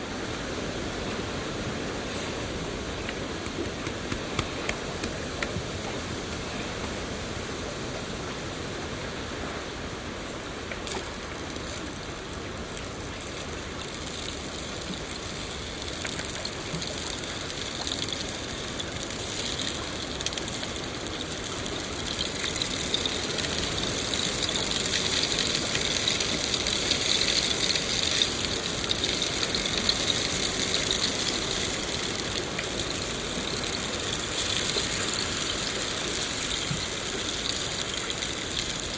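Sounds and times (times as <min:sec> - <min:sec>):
steady rushing hiss: 0:00.0 - 0:38.9
fire crackling: 0:13.0 - 0:38.9.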